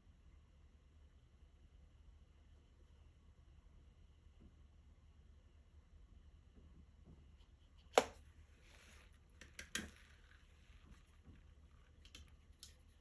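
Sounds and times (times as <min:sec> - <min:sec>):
soft rustle: 0:08.4 - 0:13.0.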